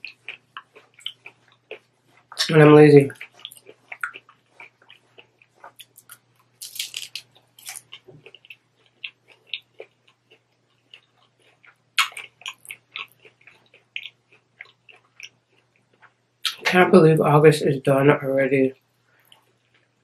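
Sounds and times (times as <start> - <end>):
crunching taco shell: 3.2 - 16.2.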